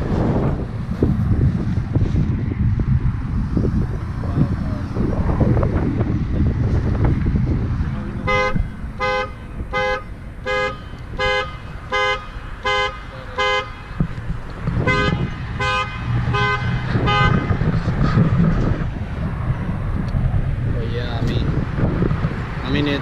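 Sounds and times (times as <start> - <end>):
low rumble: 0.0 - 22.6
car alarm horn honking: 8.2 - 14.0, 14.8 - 17.6.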